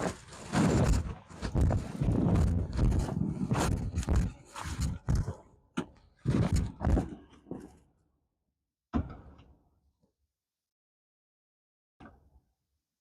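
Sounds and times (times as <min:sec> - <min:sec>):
muffled thumps and scuffing: 0:00.0 - 0:05.4, 0:06.3 - 0:07.7.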